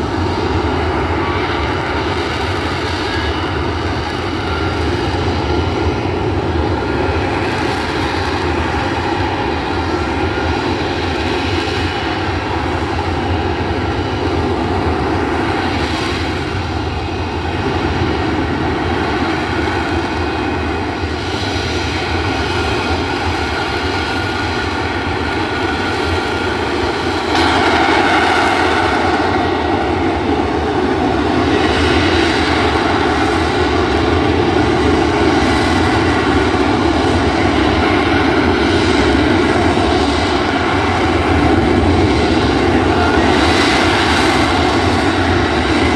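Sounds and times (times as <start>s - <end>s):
jet aircraft hovering: 0.0s - 45.9s.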